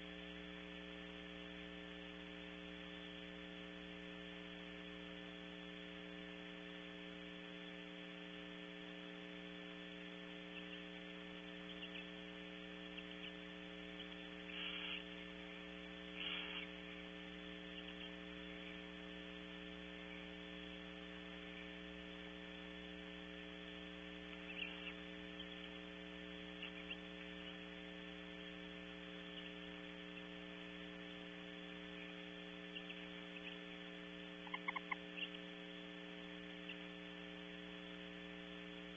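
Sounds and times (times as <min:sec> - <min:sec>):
electrical mains hum with hiss: 0:00.0 - 0:38.9
short raspy noises: 0:14.5 - 0:15.1, 0:16.1 - 0:16.8.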